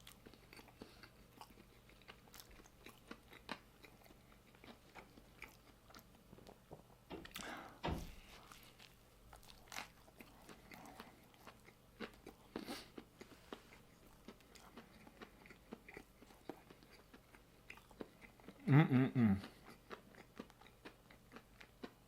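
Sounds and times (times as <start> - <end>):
person chewing crispy food: 0.0 - 22.0.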